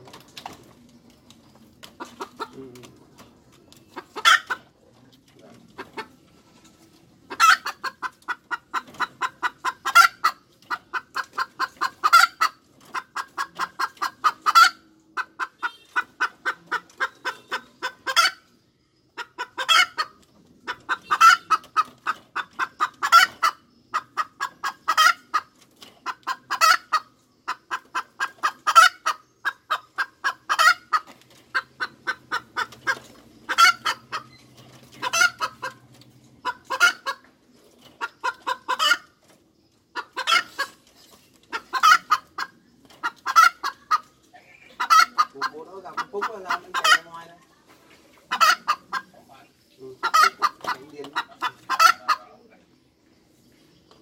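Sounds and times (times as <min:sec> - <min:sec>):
hen cackling: 0:04.0 - 0:04.8, 0:07.3 - 0:18.5, 0:19.1 - 0:37.3, 0:38.0 - 0:39.2, 0:39.9 - 0:40.8, 0:41.5 - 0:47.3, 0:48.3 - 0:52.5.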